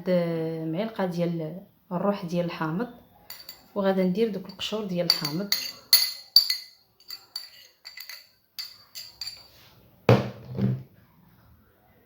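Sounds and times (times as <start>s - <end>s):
metal utensil clinking on glass bowl: 3.3s - 3.7s, 4.3s - 9.6s.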